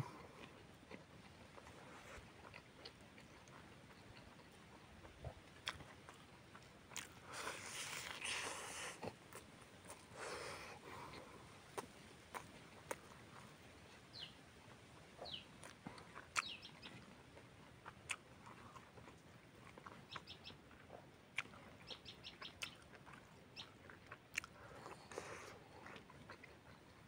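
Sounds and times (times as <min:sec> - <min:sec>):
chewing and lip-smacking: 0:00.0 - 0:27.0
small birds chirping: 0:06.6 - 0:27.0.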